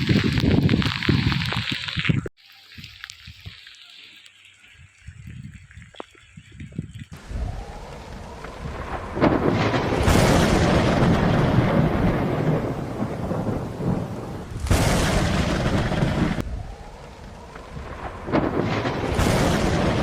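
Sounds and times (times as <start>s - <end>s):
heavy rain pouring: 0.0s - 20.0s
deep low rumble: 7.2s - 20.0s.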